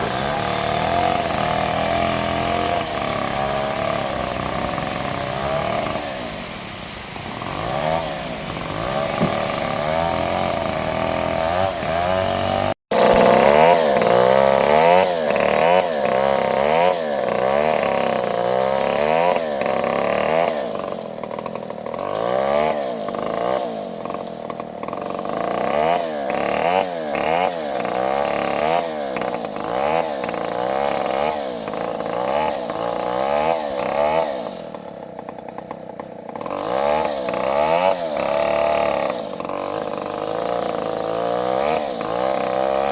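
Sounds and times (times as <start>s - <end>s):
bandsaw machine whine: 0.0s - 42.9s.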